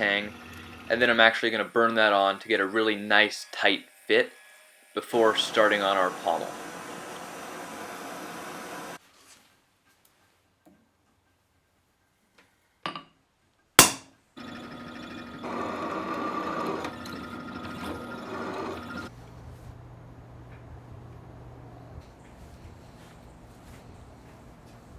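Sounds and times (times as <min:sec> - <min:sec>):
power tool running: 0:00.0 - 0:09.0, 0:14.4 - 0:19.1
sharp knocks on metal or wood: 0:13.8 - 0:14.1.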